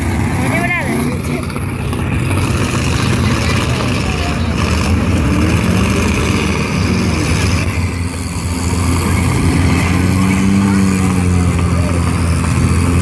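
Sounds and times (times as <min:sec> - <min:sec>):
car engines running loudly: 0:00.0 - 0:13.0.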